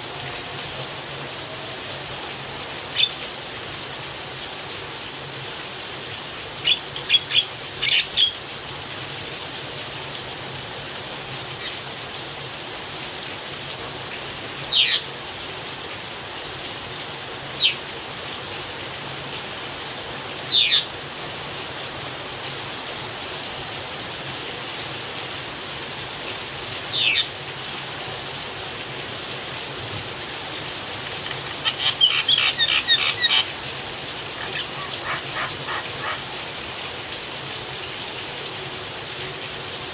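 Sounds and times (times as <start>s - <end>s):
steady rain: 0.0s - 39.9s
myna calling: 31.0s - 36.7s.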